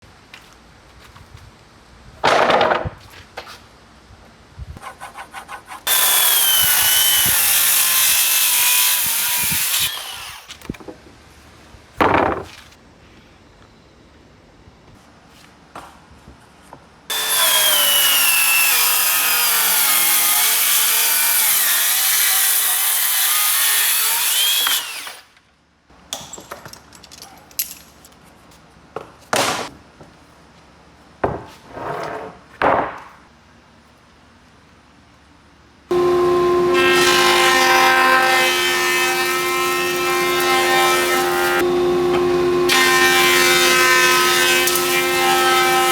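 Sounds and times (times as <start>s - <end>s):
power tool cutting wood: 5.8s - 10.6s, 17.1s - 25.3s, 35.9s - 45.9s.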